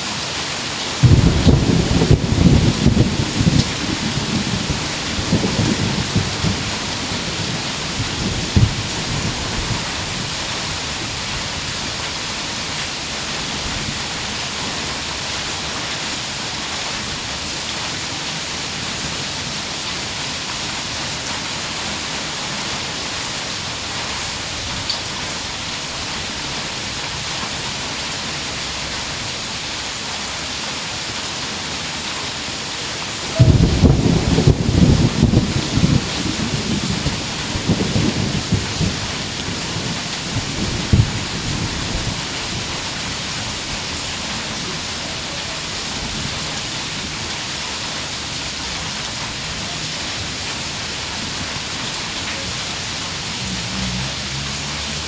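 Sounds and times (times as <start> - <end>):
heavy rain pouring: 0.0 - 55.0
low thunder rumble: 1.0 - 11.7, 33.3 - 44.0.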